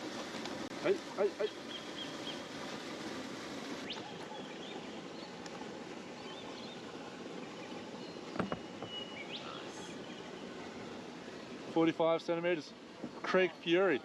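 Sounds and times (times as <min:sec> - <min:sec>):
steady river hiss: 0:00.0 - 0:14.0
bird chirps: 0:01.4 - 0:02.5, 0:06.1 - 0:11.5.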